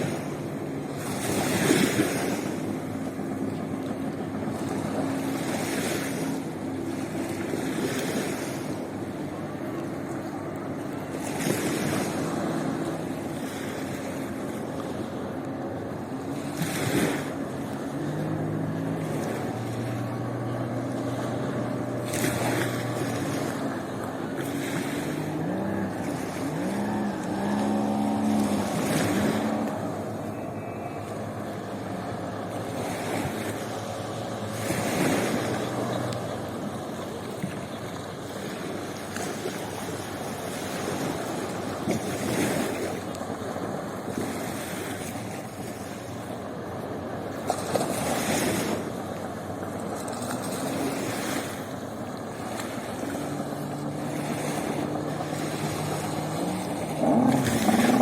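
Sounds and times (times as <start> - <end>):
sea waves washing onto beach: 0.0 - 58.0
wind on microphone: 16.5 - 37.8, 52.3 - 58.0.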